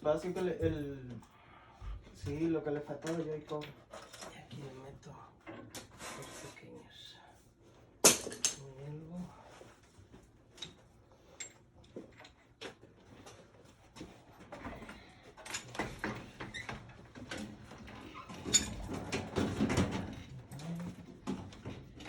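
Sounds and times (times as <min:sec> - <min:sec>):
clicks and knocks of handling: 0:02.9 - 0:04.7.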